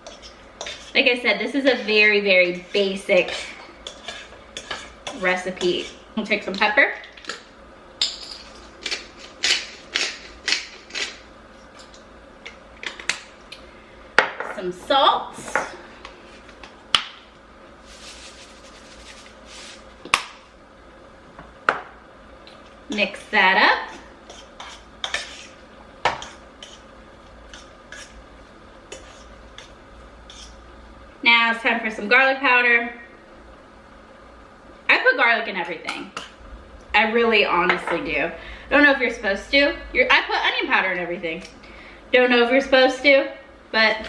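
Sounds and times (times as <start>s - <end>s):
utensil clinking and scraping bowl: 0.0s - 7.4s, 22.9s - 26.8s, 27.5s - 28.2s, 28.9s - 30.6s.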